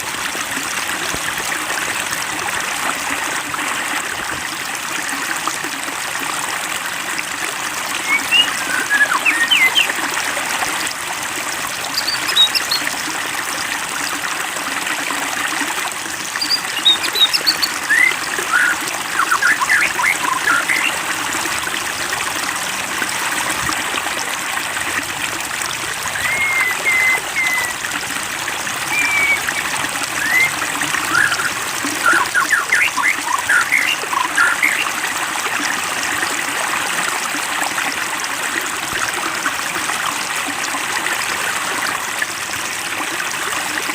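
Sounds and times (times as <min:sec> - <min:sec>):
babbling water: 0:00.0 - 0:43.9
bird chirps and calls: 0:08.1 - 0:09.9, 0:12.0 - 0:12.9, 0:16.3 - 0:20.9, 0:26.2 - 0:27.8, 0:28.9 - 0:34.8.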